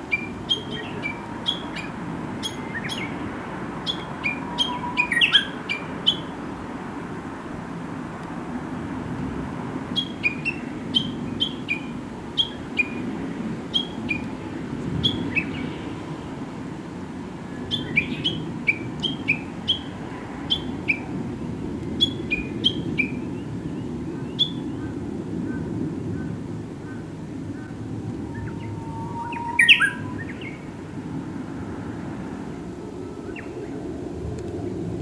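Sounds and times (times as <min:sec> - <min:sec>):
songbird calling sharp notes: 0:00.0 - 0:03.2, 0:03.8 - 0:06.4, 0:10.0 - 0:13.0, 0:17.6 - 0:19.9, 0:27.7 - 0:30.7.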